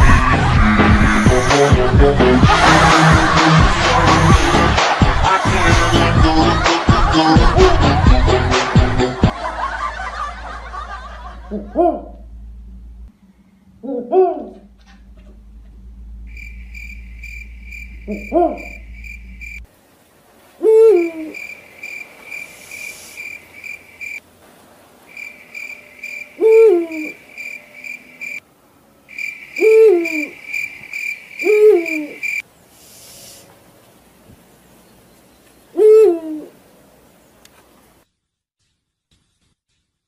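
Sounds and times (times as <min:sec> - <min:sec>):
low hum: 0:09.3 - 0:19.7
owl hooting: 0:13.8 - 0:19.6, 0:20.6 - 0:24.2, 0:25.1 - 0:28.4, 0:29.1 - 0:33.4, 0:35.7 - 0:36.6
cricket chirping: 0:15.4 - 0:19.7, 0:20.8 - 0:24.2, 0:25.1 - 0:28.4, 0:29.0 - 0:32.4.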